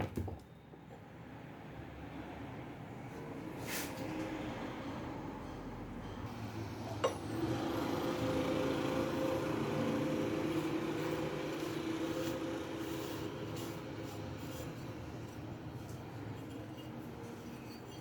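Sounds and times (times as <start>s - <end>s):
starter motor humming: 7.2s - 12.9s.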